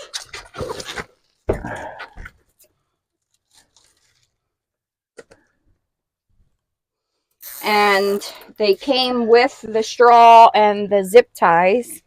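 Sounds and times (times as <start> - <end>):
plastic bag crinkling: 3.1 - 4.5.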